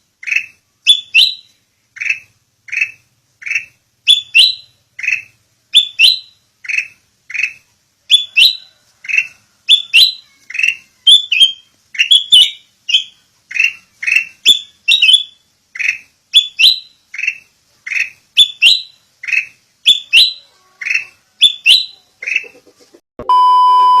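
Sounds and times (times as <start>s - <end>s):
bird calling: 0.0s - 23.0s
loud steady electronic tone: 23.2s - 24.0s.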